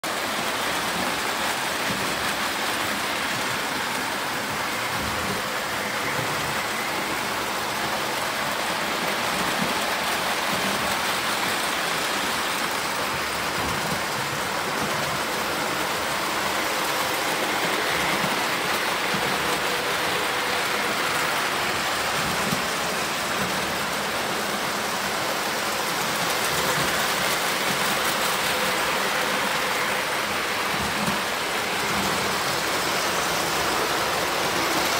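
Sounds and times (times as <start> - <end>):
wheels rumbling on rails: 0.0 - 34.9
toy train motors whirring: 0.4 - 34.9.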